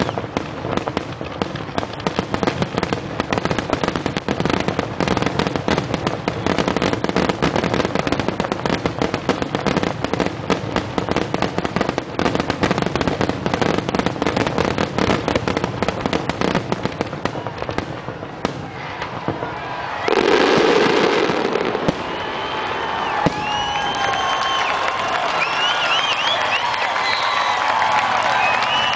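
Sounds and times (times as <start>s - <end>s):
fireworks bangs and crackles: 0.0s - 28.9s
crowd cheering: 16.5s - 28.9s.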